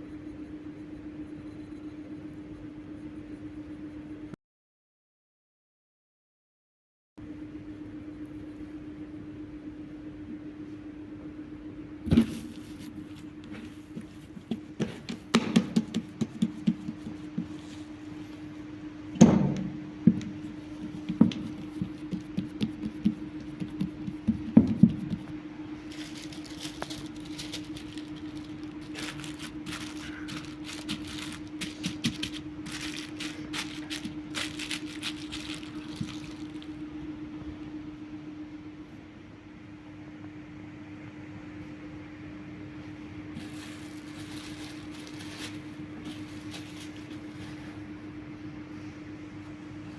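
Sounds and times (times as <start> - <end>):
steady low hum: 0.0 - 4.4, 7.2 - 49.9
food preparation knocks and thuds: 12.1 - 12.6, 13.5 - 17.6, 19.2 - 25.3.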